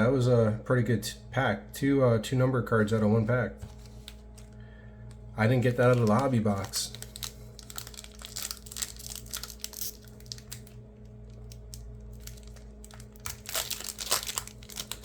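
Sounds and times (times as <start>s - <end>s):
foil wrapper crinkling: 5.4s - 15.0s.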